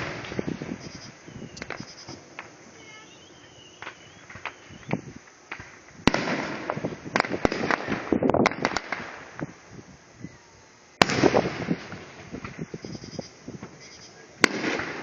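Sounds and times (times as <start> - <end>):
fireworks banging and crackling: 0.0 - 15.0.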